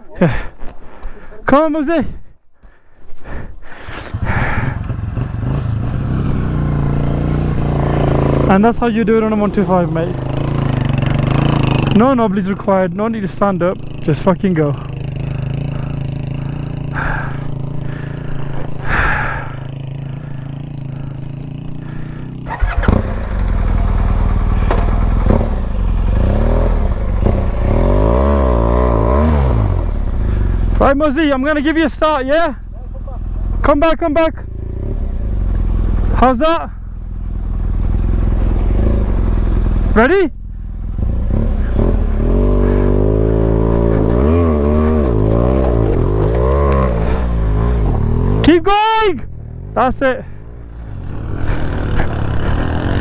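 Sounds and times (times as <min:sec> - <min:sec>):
motorcycle engine revving: 0:03.8 - 0:53.0.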